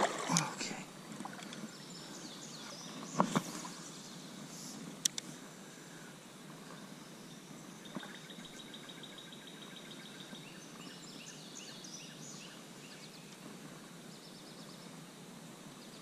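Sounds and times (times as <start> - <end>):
steady outdoor hiss: 0.0 - 16.0
small bird singing: 1.6 - 4.4, 6.8 - 13.4.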